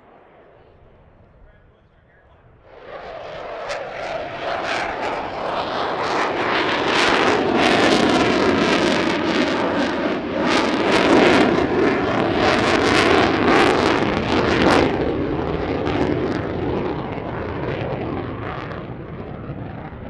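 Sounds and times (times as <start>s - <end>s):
faint gliding whine: 0.0s - 7.6s
airplane flying over roaring: 0.0s - 20.0s.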